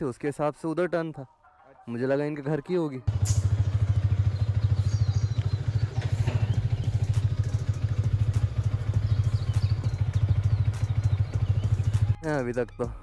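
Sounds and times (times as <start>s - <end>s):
motorcycle engine idling: 3.1s - 12.2s.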